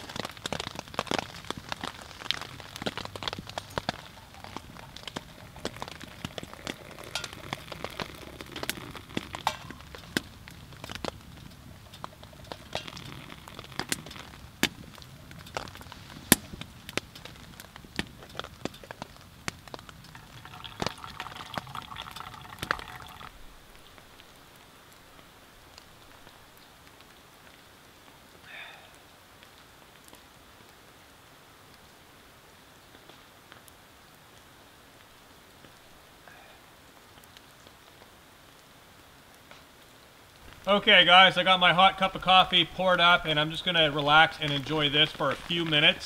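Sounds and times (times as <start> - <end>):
water pouring from kettle: 0.0 - 14.4, 20.1 - 23.5
coffee grounds fizzing: 0.0 - 19.1, 19.7 - 24.2, 40.4 - 46.0
wood fire crackling and popping: 0.0 - 46.0.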